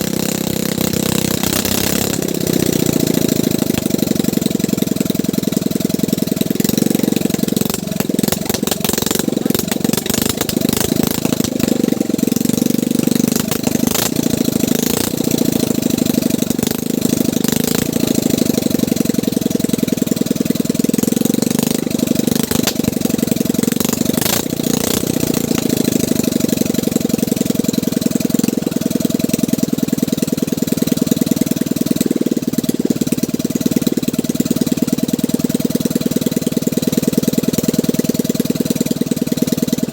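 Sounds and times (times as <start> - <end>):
sharp clicks: 0.0 - 4.7, 6.6 - 15.6, 21.6 - 26.1
boat engine running: 0.0 - 39.9.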